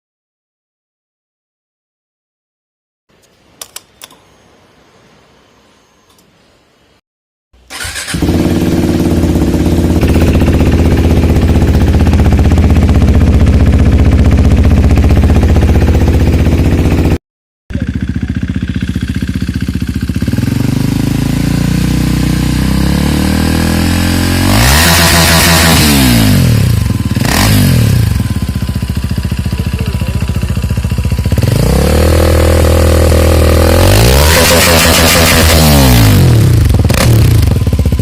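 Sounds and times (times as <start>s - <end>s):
motorcycle engine idling and revving: 7.7s - 38.0s.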